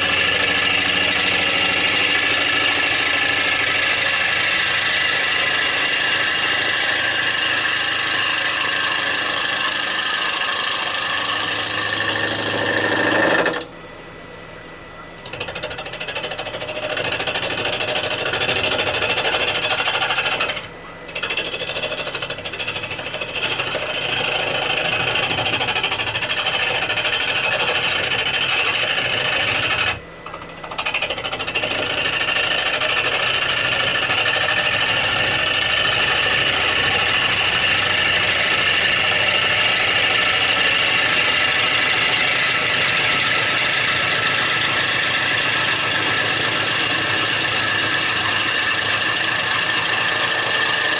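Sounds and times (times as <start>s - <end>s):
gouge cutting wood on lathe: 0.0s - 13.7s, 15.2s - 50.9s.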